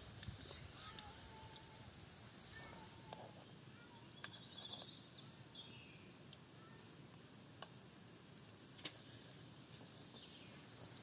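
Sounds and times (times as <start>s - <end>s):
small bird chirping: 2.6s - 6.9s, 7.7s - 11.0s.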